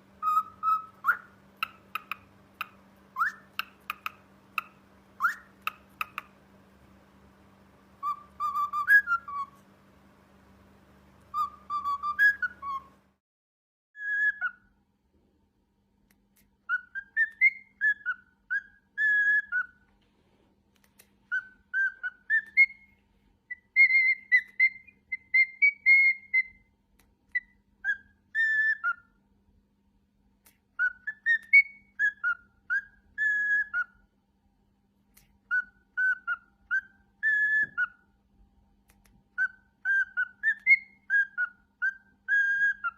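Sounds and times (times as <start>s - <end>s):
cockatiel whistling: 0.2s - 6.4s, 8.0s - 9.6s, 11.2s - 13.0s, 14.0s - 14.8s, 16.6s - 19.8s, 21.2s - 26.7s, 27.3s - 29.2s, 30.8s - 34.0s, 35.4s - 38.1s, 39.3s - 42.9s.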